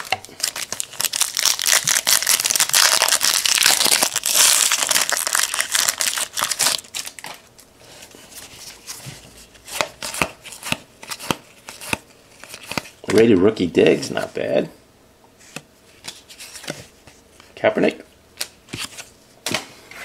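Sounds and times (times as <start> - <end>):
card pack wrapper tearing and crinkling: 0.0 - 7.5.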